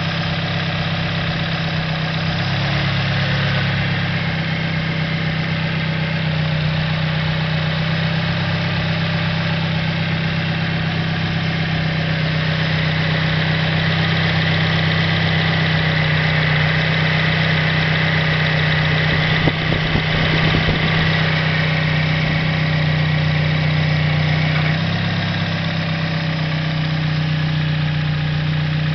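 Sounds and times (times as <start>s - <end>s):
car engine idling: 0.0s - 28.9s
engine knock and clicks: 0.0s - 28.9s.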